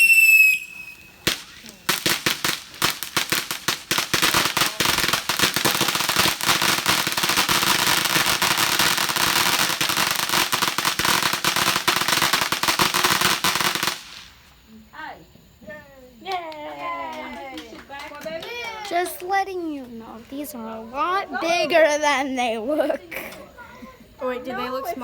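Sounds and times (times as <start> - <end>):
firework crackling pops: 0.0 - 14.7, 16.2 - 20.0.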